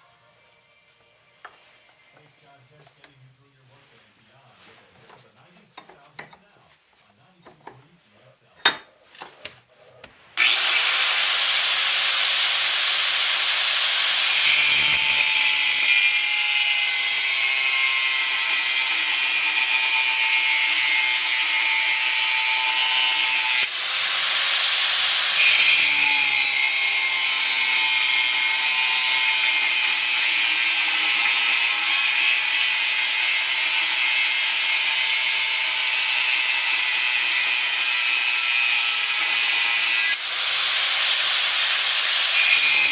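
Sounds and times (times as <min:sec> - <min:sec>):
angle grinder cutting metal: 0:10.4 - 0:42.9.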